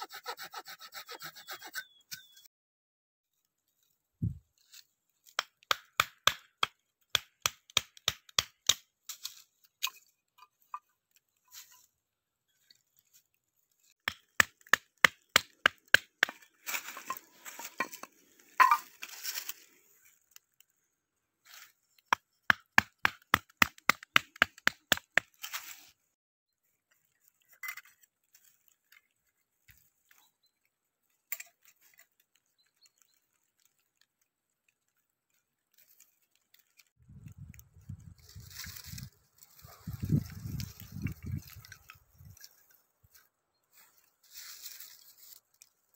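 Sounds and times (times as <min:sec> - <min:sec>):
crunching footsteps: 0:16.3 - 0:20.0, 0:38.0 - 0:45.8.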